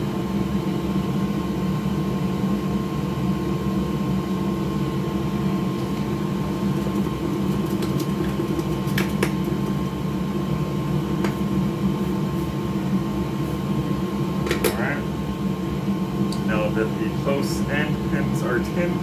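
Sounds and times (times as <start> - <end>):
electric fan hum: 0.0 - 19.0.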